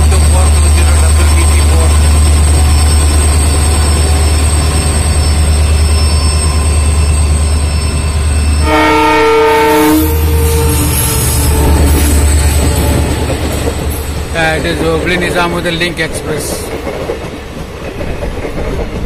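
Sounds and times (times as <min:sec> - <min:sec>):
locomotive horn: 0:08.6 - 0:12.9.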